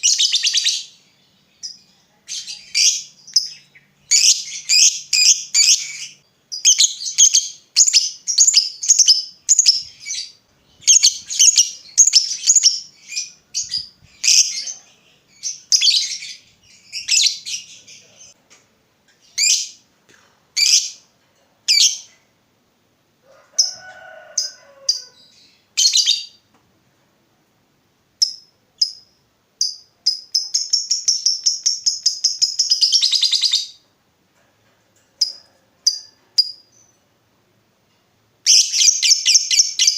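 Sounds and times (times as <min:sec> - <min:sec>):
lovebird chirping: 0:00.0 - 0:18.4, 0:19.2 - 0:19.8, 0:20.6 - 0:21.1, 0:21.7 - 0:22.1, 0:24.9 - 0:26.4, 0:28.2 - 0:33.8, 0:35.2 - 0:37.1, 0:38.4 - 0:39.9.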